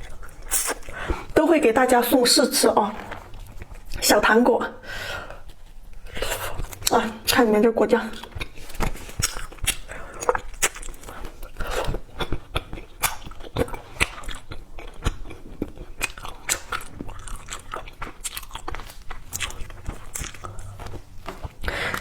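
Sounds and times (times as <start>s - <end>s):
crunchy chewing: 8.2s - 22.0s.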